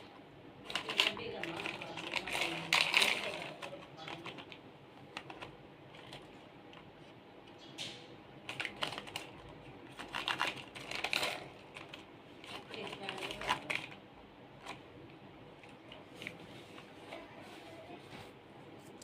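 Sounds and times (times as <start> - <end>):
plastic toys clicking and tapping: 0.6 - 6.9, 7.7 - 14.0.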